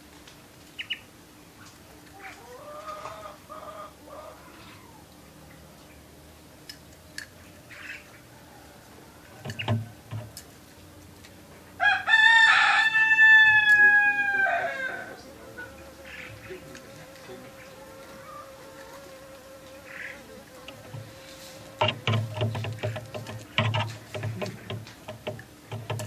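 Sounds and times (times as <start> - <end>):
rooster crowing: 2.4 - 5.0, 8.2 - 10.1, 11.8 - 15.3, 17.8 - 19.2
soft knocks: 21.8 - 26.0.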